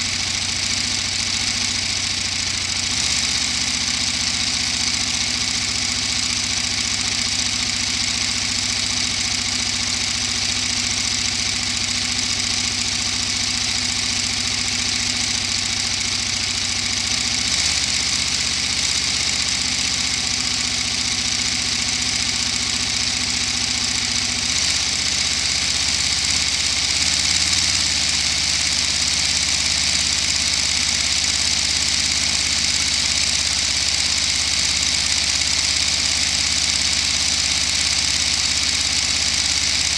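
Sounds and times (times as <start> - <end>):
toy engine mechanical whir: 0.0 - 39.9.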